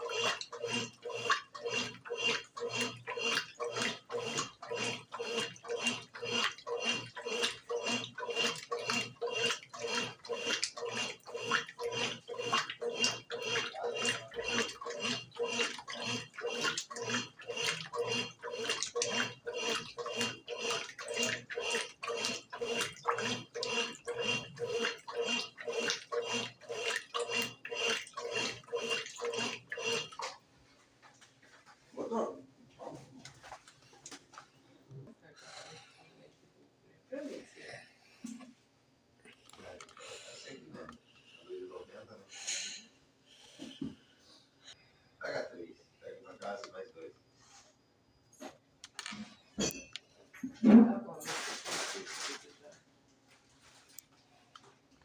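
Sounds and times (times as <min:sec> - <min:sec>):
water sloshing: 0:00.0 - 0:30.4
washing machine agitating: 0:00.0 - 0:32.1, 0:32.8 - 0:34.3.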